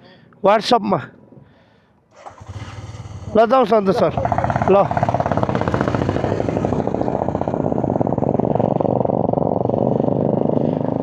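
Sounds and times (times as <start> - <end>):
motorcycle engine running: 2.2 - 11.0.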